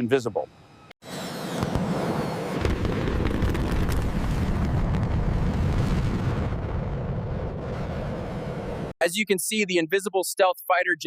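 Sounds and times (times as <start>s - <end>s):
jet engine roar: 0.5s - 8.9s.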